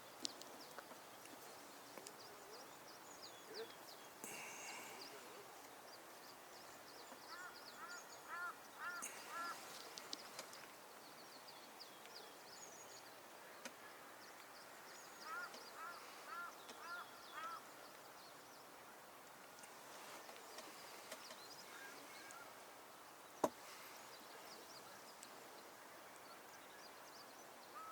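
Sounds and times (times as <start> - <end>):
faint animal calls: 7.3 - 10.2.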